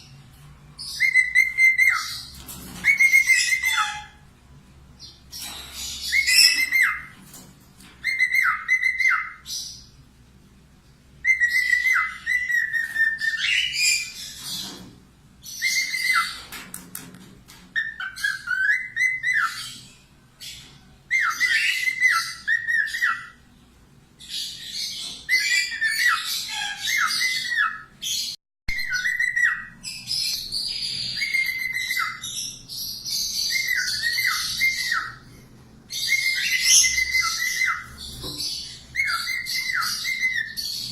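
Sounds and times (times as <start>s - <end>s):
parrot whistling: 1.0s - 2.2s, 2.8s - 4.2s, 8.0s - 9.5s, 11.2s - 14.2s, 17.8s - 19.8s, 21.1s - 23.4s, 28.7s - 29.8s, 31.2s - 32.4s, 33.3s - 35.2s, 36.0s - 37.9s, 38.9s - 40.7s
parrot chattering: 2.9s - 4.2s.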